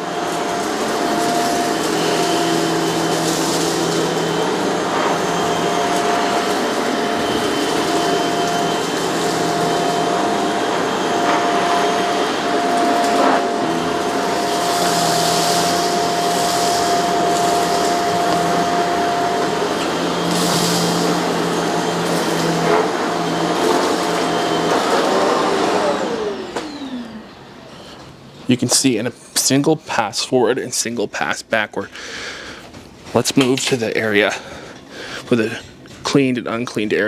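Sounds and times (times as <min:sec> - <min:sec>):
vacuum cleaner running: 0:00.0 - 0:28.9.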